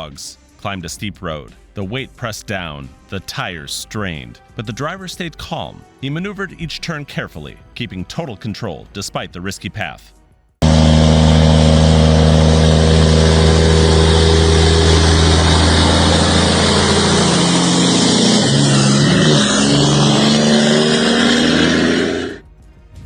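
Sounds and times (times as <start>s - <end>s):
truck diesel engine labouring: 10.6s - 22.4s.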